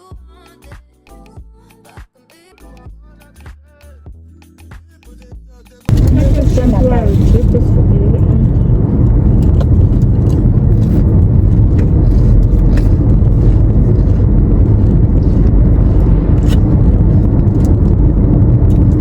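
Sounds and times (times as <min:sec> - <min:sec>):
road and engine rumble in car: 0:05.9 - 0:19.0.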